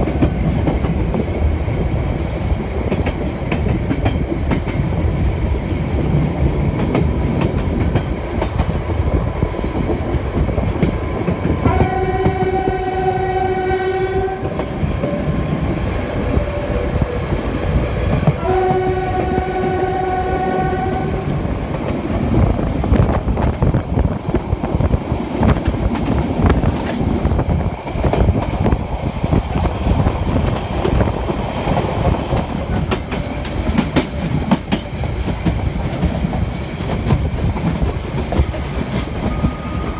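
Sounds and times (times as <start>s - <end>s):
train wheels rumbling and clicking: 0.0s - 39.9s
locomotive horn blasts: 11.6s - 14.6s, 18.4s - 21.4s.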